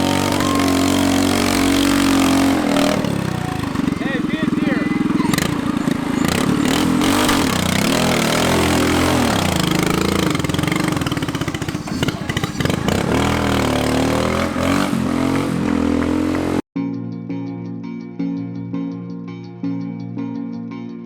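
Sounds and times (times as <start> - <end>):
tractor engine revving: 0.0 - 16.6.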